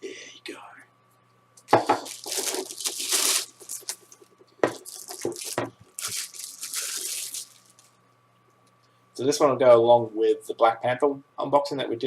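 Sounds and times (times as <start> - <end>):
plastic packaging crinkling and tearing: 1.8 - 8.0.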